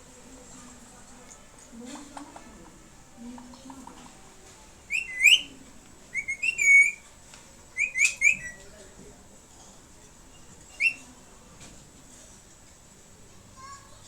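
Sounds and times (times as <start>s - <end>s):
parrot whistled chirps: 4.9s - 5.5s, 6.1s - 7.0s, 7.8s - 8.6s, 10.8s - 11.0s.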